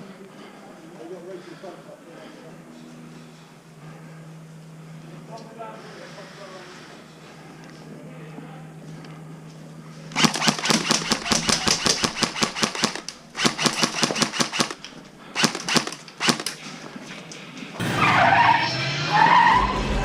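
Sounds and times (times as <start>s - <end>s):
airsoft rifle full-auto bursts: 10.1s - 16.6s.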